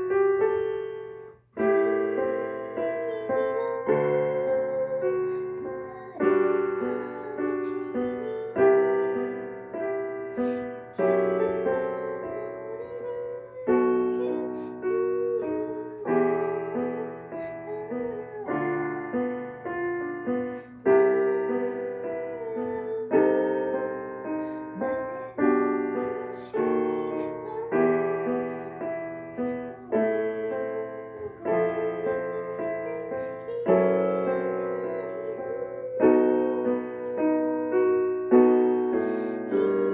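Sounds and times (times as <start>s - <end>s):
gentle solo piano: 0.0s - 39.9s.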